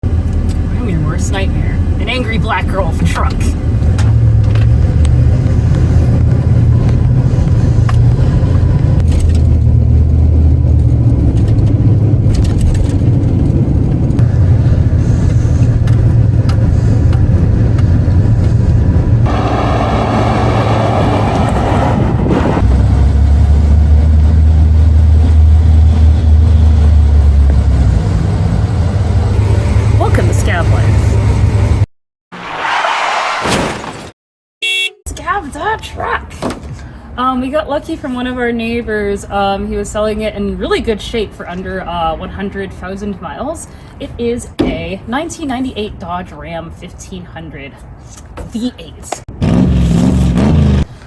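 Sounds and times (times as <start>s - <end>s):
vehicle engine running loudly: 3.6s - 31.8s.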